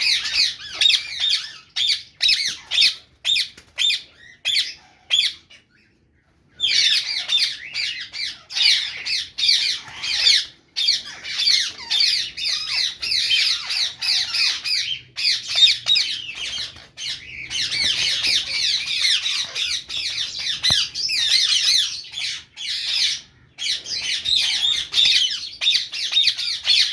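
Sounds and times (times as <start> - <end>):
birds chattering shrilly: 0.0 - 26.9.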